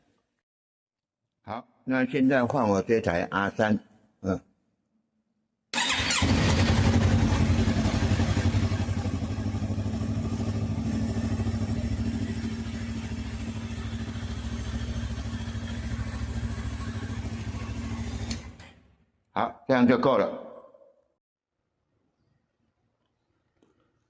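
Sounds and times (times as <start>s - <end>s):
motorcycle engine starting and idling: 5.8s - 19.0s.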